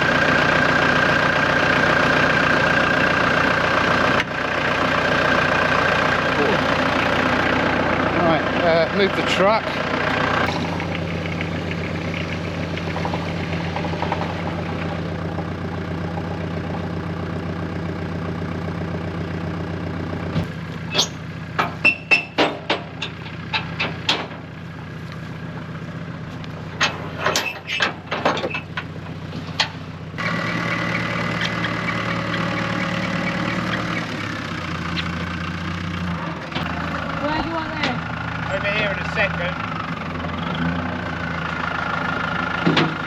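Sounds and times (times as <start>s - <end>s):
truck engine idling: 0.0s - 43.0s
sharp knocks and clanks: 12.2s - 15.0s, 20.3s - 24.5s, 26.8s - 29.8s, 42.6s - 43.0s.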